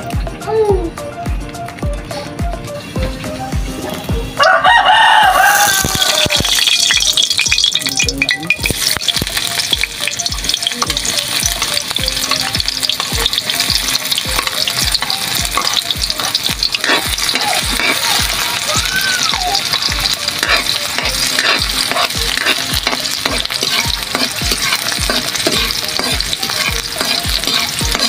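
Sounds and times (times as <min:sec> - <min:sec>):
food sizzling in hot oil: 0:02.7 - 0:28.0
metal spoon clinking and scraping: 0:05.6 - 0:18.6, 0:19.6 - 0:28.0.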